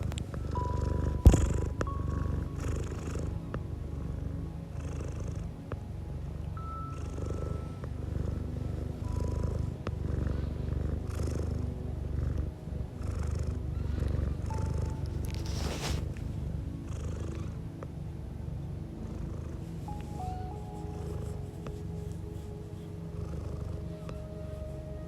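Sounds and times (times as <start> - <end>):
cat purring: 0.0 - 25.0
cat hissing: 15.4 - 16.1.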